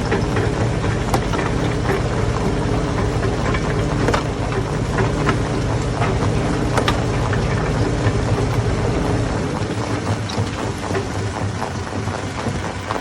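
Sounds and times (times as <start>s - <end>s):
stone crusher running: 0.0s - 13.0s.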